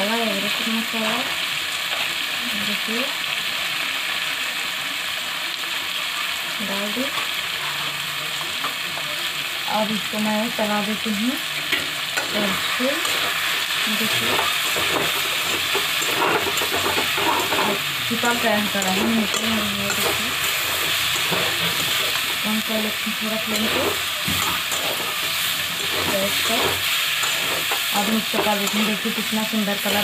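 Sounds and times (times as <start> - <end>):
food sizzling in hot oil: 0.0 - 30.0
spatula scraping a pan: 11.6 - 22.5, 23.1 - 30.0.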